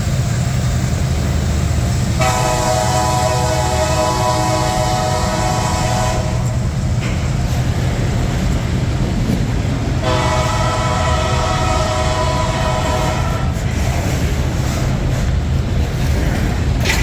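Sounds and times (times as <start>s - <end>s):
low rumble of passing train: 0.0s - 17.0s
locomotive air horn chord: 2.2s - 6.6s, 10.0s - 13.7s.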